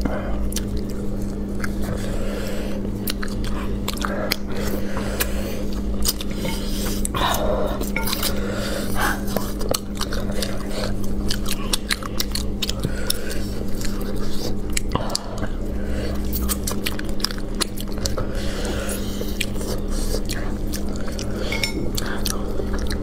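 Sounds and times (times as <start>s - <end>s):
steady low hum: 0.0s - 23.0s
wet chewing and lip-smacking: 0.4s - 7.2s, 9.0s - 23.0s.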